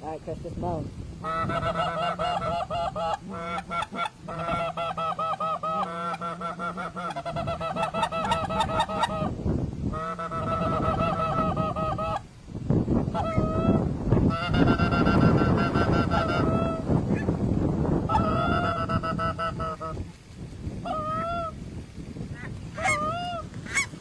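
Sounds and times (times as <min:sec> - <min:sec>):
wind rumble: 0:00.0 - 0:24.0
goose honking and clucking: 0:01.2 - 0:12.2, 0:13.1 - 0:17.3, 0:18.1 - 0:20.0, 0:20.8 - 0:21.6, 0:22.4 - 0:24.0.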